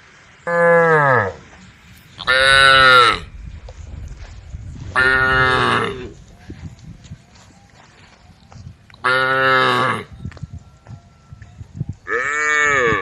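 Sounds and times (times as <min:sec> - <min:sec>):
cows mooing: 0:09.0 - 0:10.1, 0:12.1 - 0:13.0.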